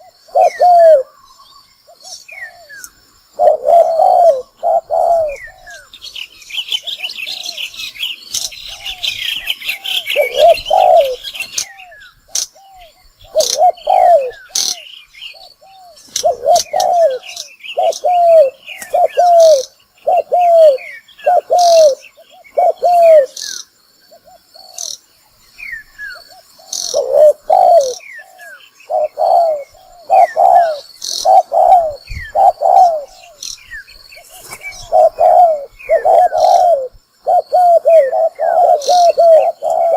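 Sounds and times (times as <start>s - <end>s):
dove cooing: 0.0s - 25.0s, 26.2s - 33.6s, 34.2s - 39.9s
small birds chirping: 0.0s - 39.9s.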